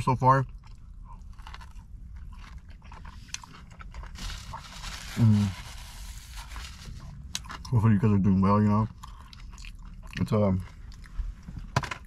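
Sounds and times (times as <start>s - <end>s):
person chewing food: 0.5s - 5.1s, 8.9s - 11.4s
paper napkin rustling: 4.2s - 7.0s.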